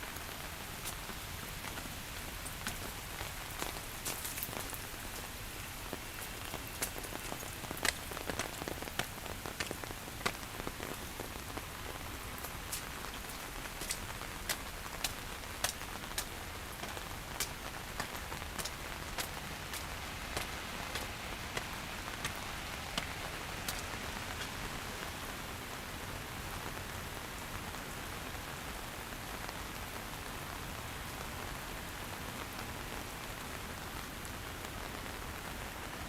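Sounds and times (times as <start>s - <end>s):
rain hissing: 0.0s - 25.8s
raindrops ticking close by: 0.0s - 36.0s.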